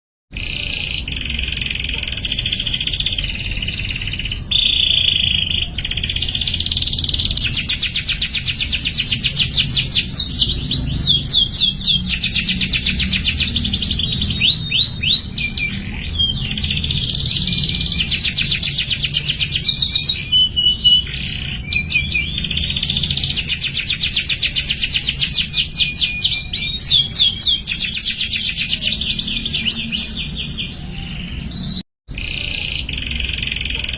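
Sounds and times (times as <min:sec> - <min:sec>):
canary singing trills: 0:00.3 - 0:33.9.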